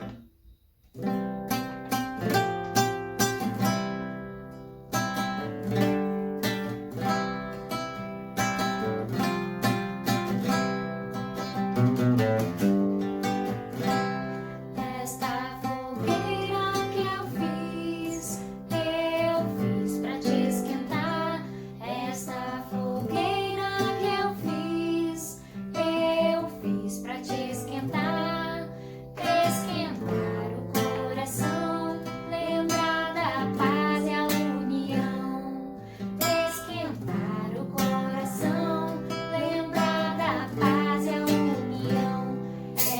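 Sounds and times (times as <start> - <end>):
acoustic guitar strumming: 0.0 - 42.9
person singing: 14.7 - 42.9.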